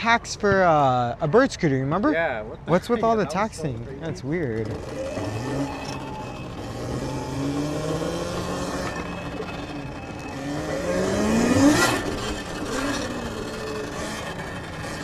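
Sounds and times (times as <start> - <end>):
electric motor whining: 4.6 - 15.0.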